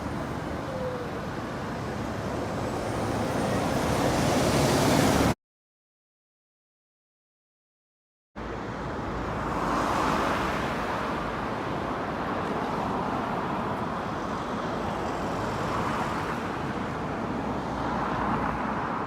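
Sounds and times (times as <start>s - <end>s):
cars passing: 8.4s - 19.0s.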